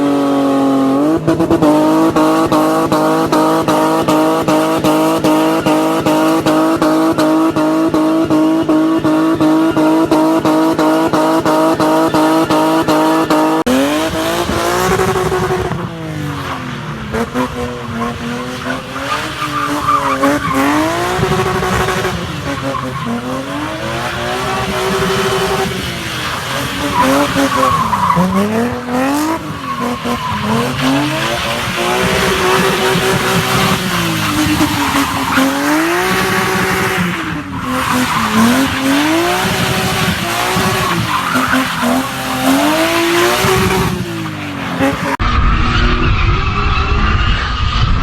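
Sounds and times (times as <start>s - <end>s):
car engine revving: 0.0s - 48.0s
tyre squeal: 16.4s - 48.0s.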